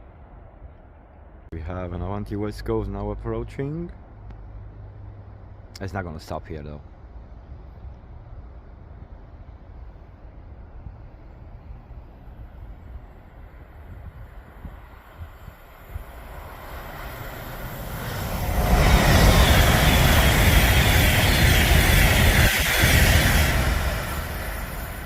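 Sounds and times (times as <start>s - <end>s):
express train passing at speed: 6.9s - 25.0s
rush of wheels and air: 7.2s - 25.0s.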